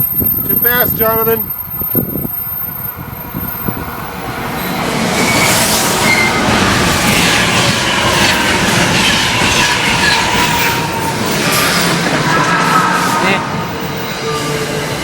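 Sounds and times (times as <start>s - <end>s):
electric train passing at speed: 0.0s - 15.0s
wheels clattering over rail joints: 4.1s - 13.3s
metallic wheel squeals: 5.2s - 15.0s.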